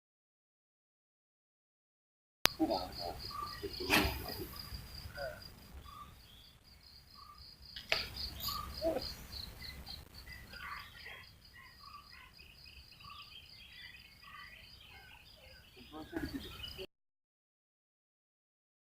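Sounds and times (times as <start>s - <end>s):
bird chirps: 2.5s - 16.9s
insects trilling: 2.5s - 16.9s.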